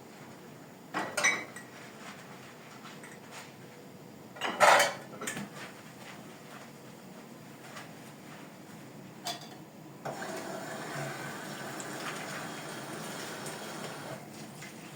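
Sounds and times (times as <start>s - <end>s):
kitchenware clinking and clattering: 1.0s - 1.7s, 4.4s - 5.5s, 9.2s - 9.6s.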